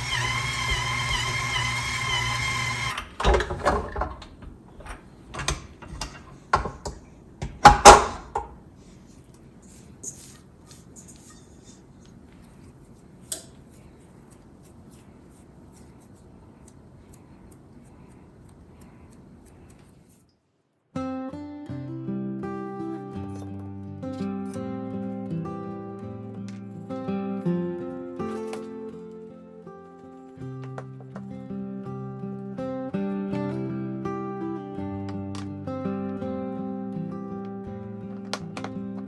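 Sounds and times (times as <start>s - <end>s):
sharp knocks and clatters: 3.1s - 8.6s
guitar music: 21.0s - 39.0s.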